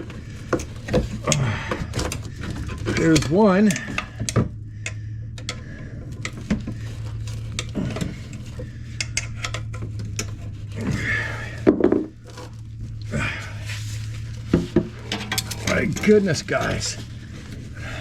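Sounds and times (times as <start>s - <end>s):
steady low hum: 0.0s - 18.0s
metal parts clinking: 1.9s - 4.4s, 14.9s - 17.6s.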